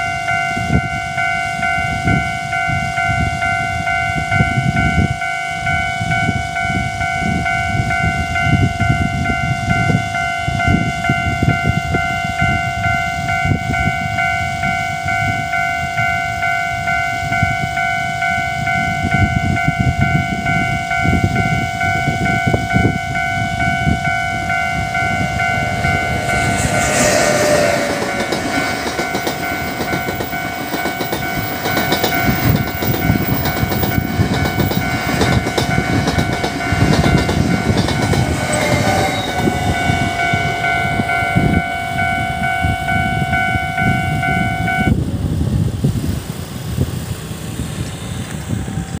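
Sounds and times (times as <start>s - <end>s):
train horn: 0.0s - 34.1s, 35.1s - 45.0s
crossing warning bell ringing: 0.0s - 45.0s
train wheels clattering over rails: 25.7s - 41.6s.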